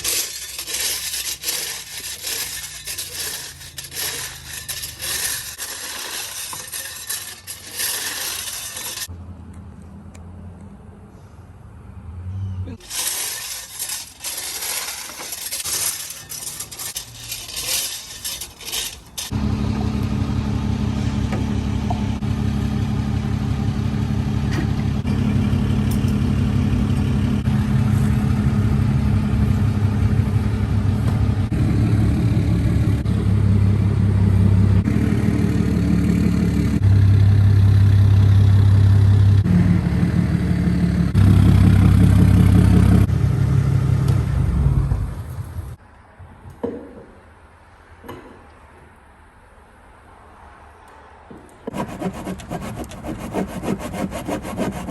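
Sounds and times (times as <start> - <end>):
rough scraping noise: 0.0 - 9.1, 12.8 - 20.1, 26.8 - 31.6, 51.7 - 54.9
engine running: 19.2 - 45.8.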